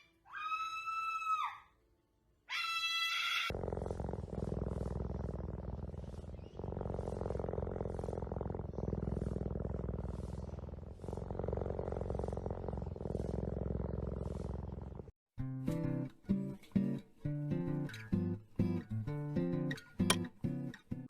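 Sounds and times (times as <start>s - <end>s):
cat purring: 3.5s - 15.1s.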